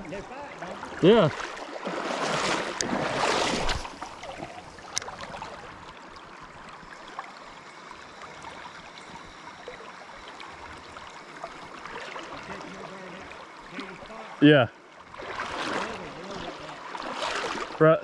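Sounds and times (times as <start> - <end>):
flowing river water: 0.0 - 18.0.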